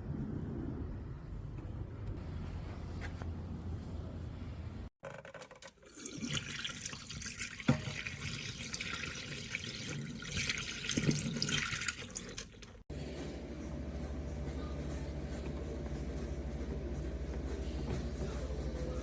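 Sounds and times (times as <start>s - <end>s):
water running and splashing: 5.9s - 12.8s.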